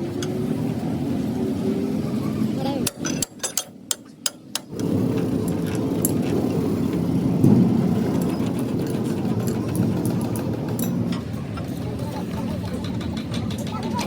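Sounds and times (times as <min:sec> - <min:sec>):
diesel engine running: 0:04.7 - 0:14.0.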